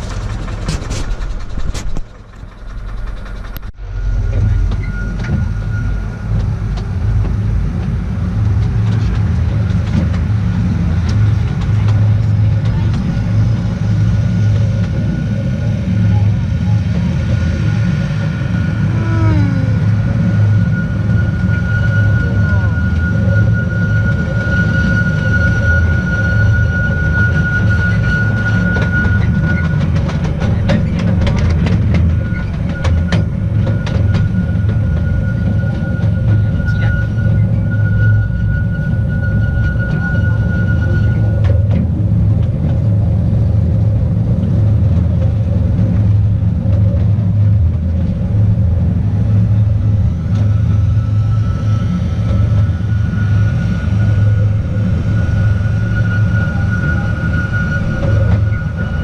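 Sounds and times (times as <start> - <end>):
train wheels rumbling on rail: 0.0 - 59.0
high wheel squeal: 2.8 - 6.8, 17.4 - 41.8, 49.6 - 59.0.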